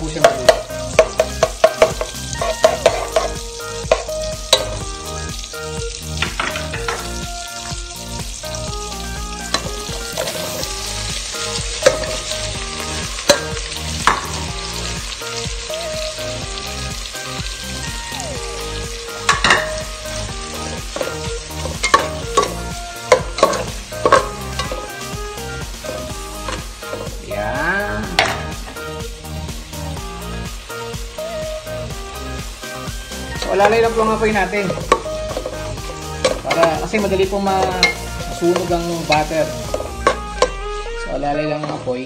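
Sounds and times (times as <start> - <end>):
butter and hotdogs sizzling: 0.0 - 42.0
metal spoon knocking against pot: 0.2 - 4.8, 19.3 - 19.8, 21.0 - 24.8.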